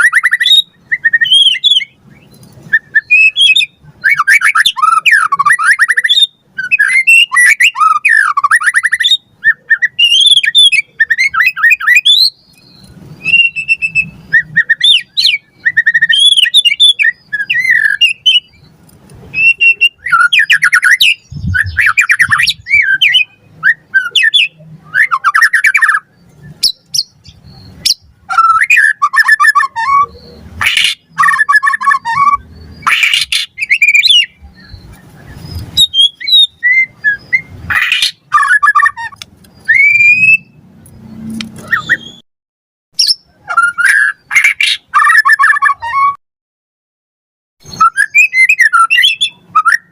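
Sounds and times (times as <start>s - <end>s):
bird singing whistled phrases: 0.0s - 18.7s, 19.3s - 40.6s, 41.6s - 42.2s, 43.0s - 46.2s, 47.6s - 49.9s
harsh bird chattering: 19.4s - 40.5s, 43.0s - 46.1s.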